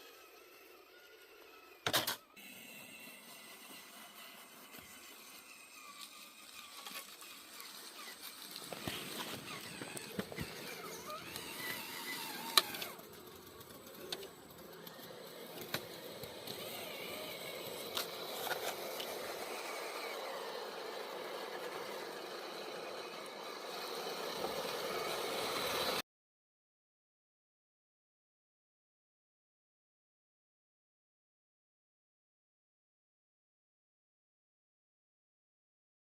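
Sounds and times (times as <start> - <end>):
toy trucks whirring: 0.0 - 26.0.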